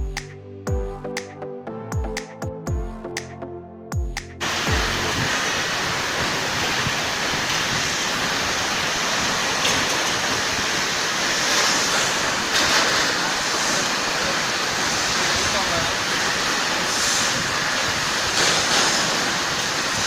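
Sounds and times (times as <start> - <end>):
electronic music: 0.0 - 5.5
water spray rushing in machine: 4.4 - 20.0
rotating rollers: 6.6 - 20.0.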